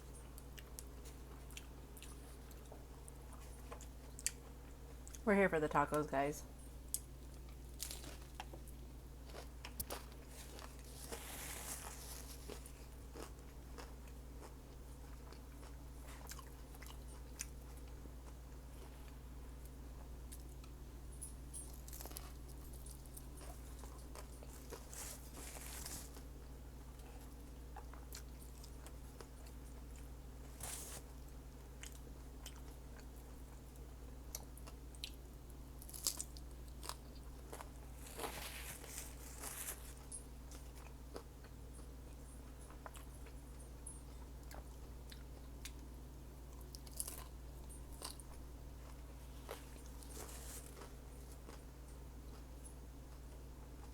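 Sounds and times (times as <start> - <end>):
steady low hum: 0.0 - 53.9
person chewing and biting food: 6.9 - 19.2, 21.7 - 31.0, 35.8 - 45.9, 46.5 - 53.9.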